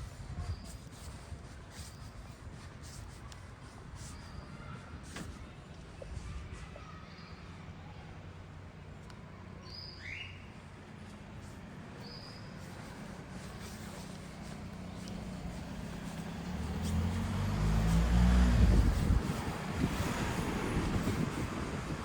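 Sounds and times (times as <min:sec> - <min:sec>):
vehicle engine rumble: 0:00.0 - 0:22.0
bird chirping: 0:09.6 - 0:10.5
rushing road noise: 0:10.7 - 0:22.0.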